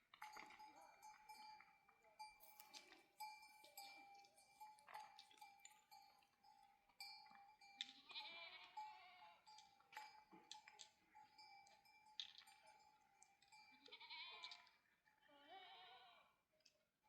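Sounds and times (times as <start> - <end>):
faint livestock sounds: 0.0 - 17.0
animal bleating: 8.0 - 9.4, 13.8 - 16.4.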